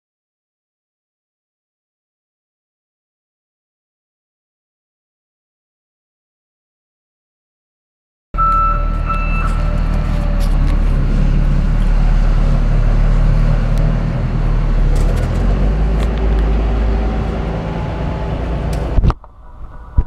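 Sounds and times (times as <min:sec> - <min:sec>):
high whine: 0:08.4 - 0:15.0
generator engine droning: 0:08.4 - 0:20.0.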